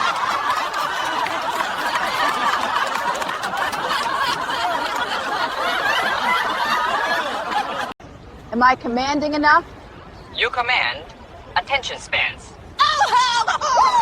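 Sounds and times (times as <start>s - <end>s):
crowd laughing: 0.0s - 8.0s.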